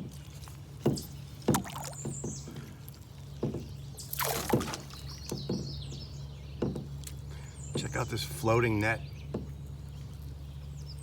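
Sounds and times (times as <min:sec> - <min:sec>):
paddle knocks on canoe: 0:00.8 - 0:02.7, 0:03.3 - 0:07.1, 0:09.3 - 0:09.6
water splashes: 0:01.4 - 0:02.1, 0:04.0 - 0:05.4.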